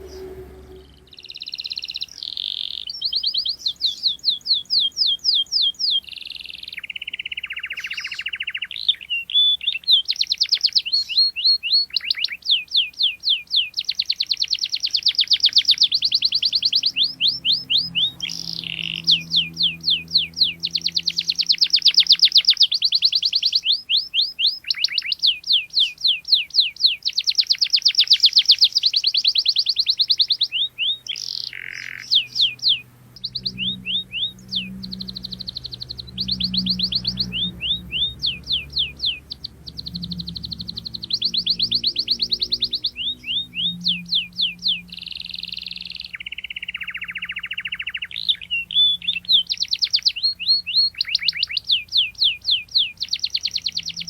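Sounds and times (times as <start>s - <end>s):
low buzzing roll: 0.0s - 1.4s, 32.1s - 45.0s
canary singing: 0.0s - 54.0s.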